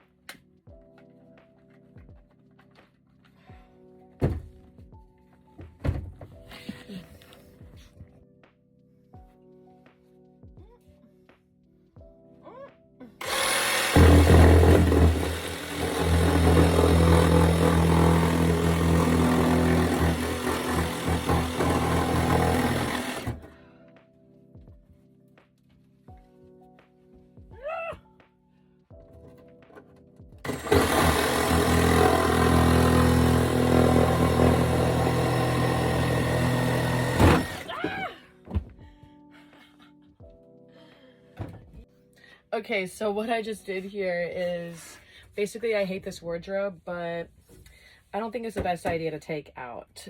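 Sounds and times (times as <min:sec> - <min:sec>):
power tool motor drone: 0:13.2 - 0:23.5, 0:30.5 - 0:37.7.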